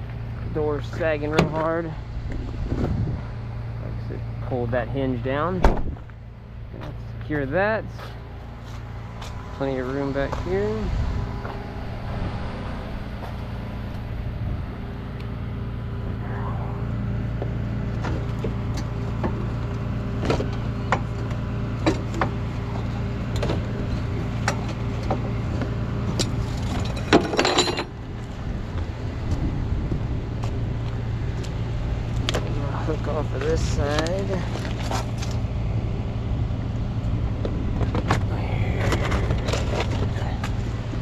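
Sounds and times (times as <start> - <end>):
truck engine idling: 0.0 - 41.0
rattling clatter: 21.8 - 28.0, 37.8 - 40.8
metal chains clinking: 26.2 - 27.9.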